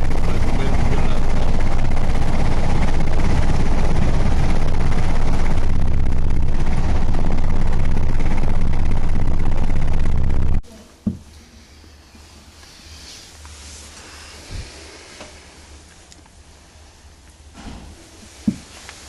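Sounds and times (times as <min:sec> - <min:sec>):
fire engine running: 0:00.0 - 0:10.6.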